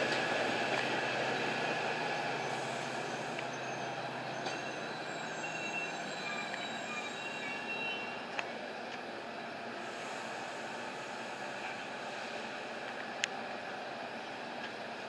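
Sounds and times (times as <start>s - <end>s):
train rumbling past: 0.0s - 15.0s
wheel and brake squeals: 2.4s - 8.2s.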